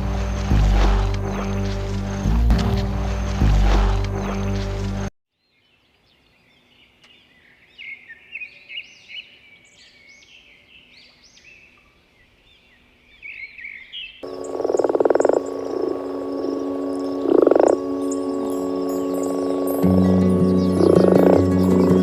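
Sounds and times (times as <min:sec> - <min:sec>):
frogs chirping in chorus: 0:14.2 - 0:22.0
steady ringing tones: 0:14.2 - 0:22.0.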